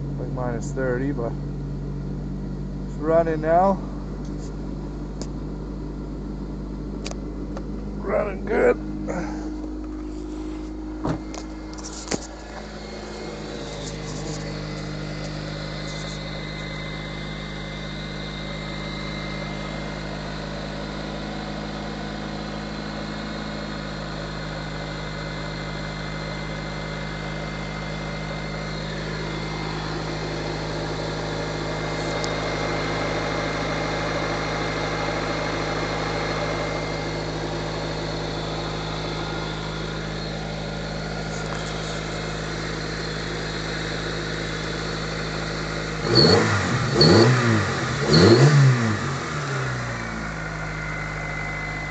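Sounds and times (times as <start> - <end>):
car engine idling: 0.0 - 51.9
sharp engine knocks: 11.0 - 11.5.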